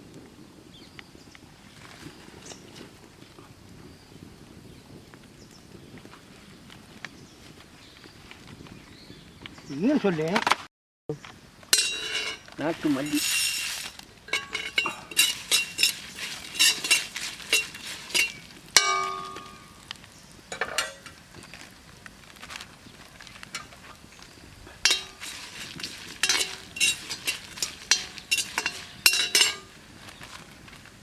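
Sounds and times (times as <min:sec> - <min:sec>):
metal spoon scraping cooking pot: 0:11.8 - 0:19.7, 0:24.8 - 0:29.7
ringing strike on metal pot: 0:16.6 - 0:19.8, 0:26.2 - 0:29.7.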